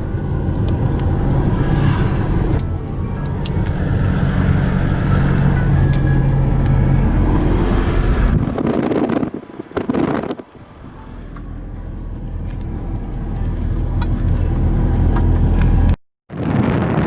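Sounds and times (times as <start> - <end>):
moving vehicle rumble: 0.0 - 16.0
wind noise on microphone: 0.0 - 17.0
light rattling clicks: 11.1 - 16.0.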